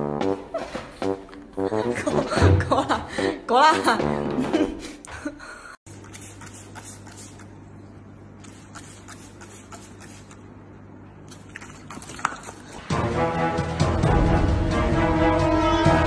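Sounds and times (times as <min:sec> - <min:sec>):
music: 0:00.0 - 0:05.0, 0:12.8 - 0:16.0
spray bottle hissing sprays: 0:05.9 - 0:07.5, 0:08.4 - 0:10.4.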